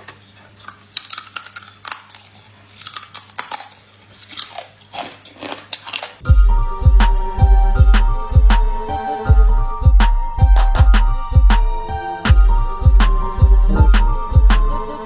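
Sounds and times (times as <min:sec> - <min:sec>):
crab shells cracking in chewing: 0:00.0 - 0:06.3
loud music with heavy bass: 0:06.3 - 0:15.0.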